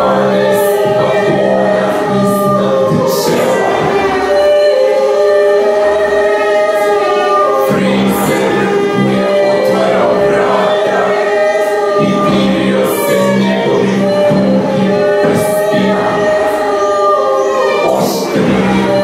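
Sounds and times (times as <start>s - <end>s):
choir singing sustained notes: 0.0s - 19.0s.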